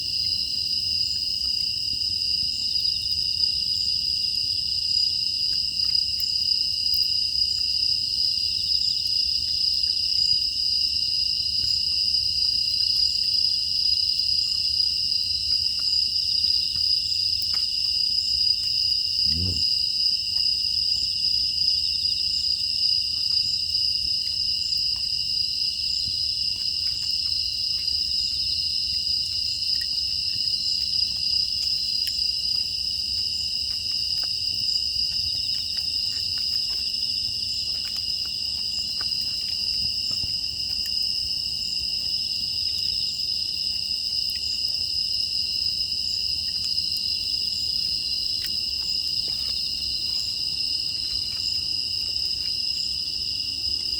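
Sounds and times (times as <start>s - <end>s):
crickets trilling: 0.0s - 53.9s
faint ticks: 15.4s - 19.7s, 29.3s - 41.0s, 46.4s - 47.1s, 48.3s - 49.7s.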